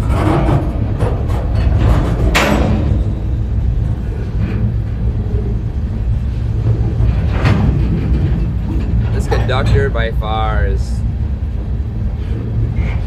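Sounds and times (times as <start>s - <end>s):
train car clank: 0.0s - 5.1s, 6.6s - 10.2s
freight train rumbling: 0.0s - 13.0s.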